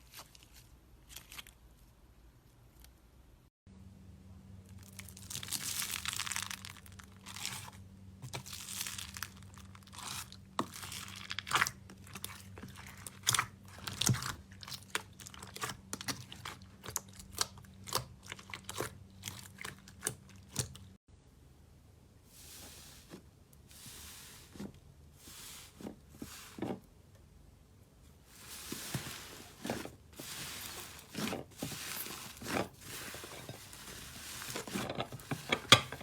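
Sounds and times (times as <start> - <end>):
faint electrical hum: 0.0 - 36.0
crunchy slime squeezed by hand: 4.8 - 7.6.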